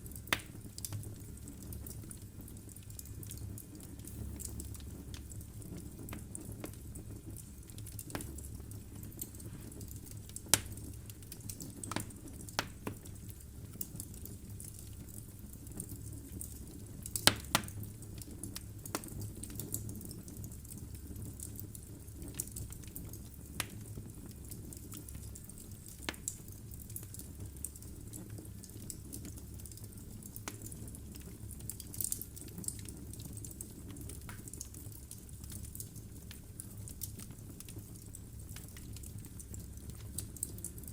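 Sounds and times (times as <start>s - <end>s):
low rumble of flames: 0.0s - 40.9s
logs crackling and snapping: 0.2s - 14.0s, 16.4s - 19.7s, 24.9s - 27.8s, 29.6s - 40.5s.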